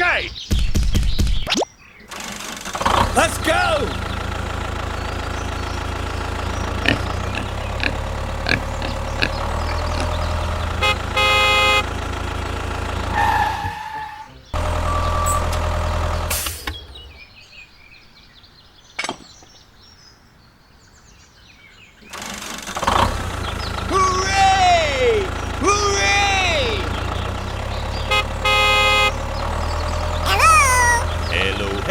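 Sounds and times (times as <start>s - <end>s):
mini tractor engine running: 2.1s - 13.8s, 14.6s - 17.1s, 22.1s - 31.9s
horn honk: 9.8s - 12.4s, 13.0s - 16.6s, 25.6s - 31.9s.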